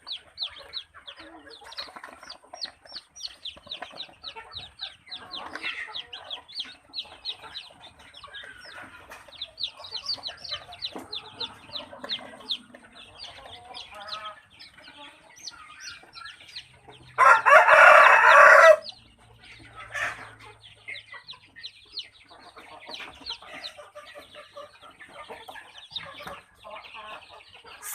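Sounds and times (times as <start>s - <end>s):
chicks peeping: 0.0s - 27.9s
rooster crowing: 17.2s - 18.9s.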